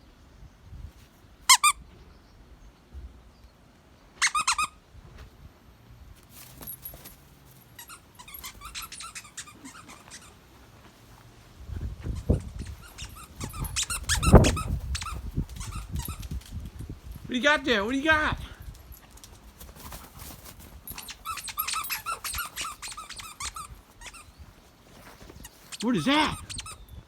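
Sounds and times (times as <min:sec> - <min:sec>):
squeaky dog toy squeaks: 0:01.5 - 0:01.8, 0:04.2 - 0:04.8, 0:07.7 - 0:10.7, 0:12.0 - 0:16.5, 0:20.8 - 0:27.0.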